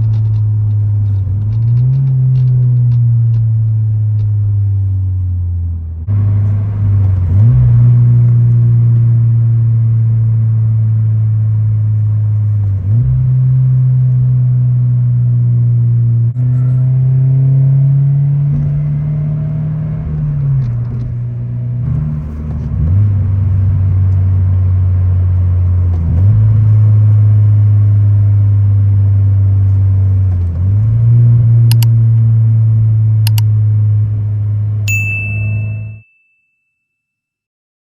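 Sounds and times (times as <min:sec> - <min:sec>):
car engine drone while driving: 0:00.0 - 0:36.0
sharp clicks: 0:31.7 - 0:32.0, 0:33.3 - 0:33.5
chime: 0:34.9 - 0:37.1.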